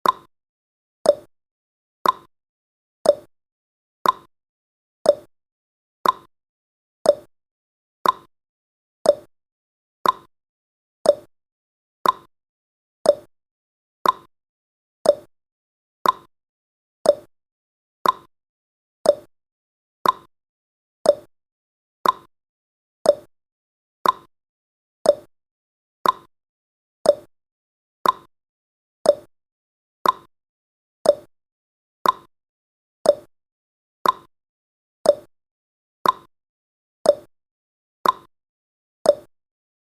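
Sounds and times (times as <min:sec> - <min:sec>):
timer ticking: 0:00.0 - 0:00.3, 0:01.1 - 0:01.3, 0:02.0 - 0:02.3, 0:03.0 - 0:03.3, 0:04.0 - 0:04.3, 0:05.1 - 0:05.3, 0:06.0 - 0:06.3, 0:07.0 - 0:07.3, 0:08.0 - 0:08.3, 0:09.0 - 0:09.3, 0:10.0 - 0:10.3, 0:11.0 - 0:11.3, 0:12.0 - 0:12.3, 0:13.0 - 0:13.3, 0:14.0 - 0:14.3, 0:15.0 - 0:15.3, 0:16.0 - 0:16.3, 0:17.0 - 0:17.3, 0:18.0 - 0:18.3, 0:19.0 - 0:19.3, 0:20.0 - 0:20.3, 0:21.0 - 0:21.3, 0:22.0 - 0:22.3, 0:23.0 - 0:23.3, 0:24.0 - 0:24.3, 0:25.0 - 0:25.3, 0:26.0 - 0:26.3, 0:27.0 - 0:27.3, 0:28.0 - 0:28.3, 0:29.0 - 0:29.3, 0:30.0 - 0:30.3, 0:31.0 - 0:31.3, 0:32.0 - 0:32.3, 0:33.0 - 0:33.3, 0:34.0 - 0:34.3, 0:35.0 - 0:35.3, 0:36.0 - 0:36.3, 0:37.1 - 0:37.3, 0:38.0 - 0:38.3, 0:39.1 - 0:39.3.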